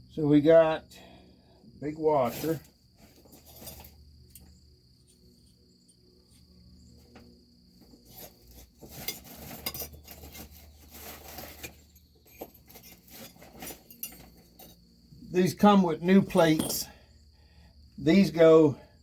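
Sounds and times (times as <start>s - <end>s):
high insect-like tone: 1.8s - 8.5s
metal parts clinking together: 11.5s - 14.8s, 16.2s - 16.9s.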